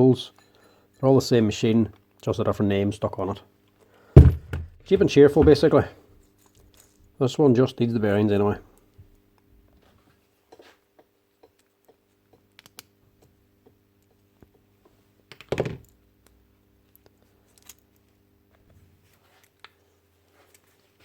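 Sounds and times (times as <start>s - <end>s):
loud clunk: 4.2s - 5.7s.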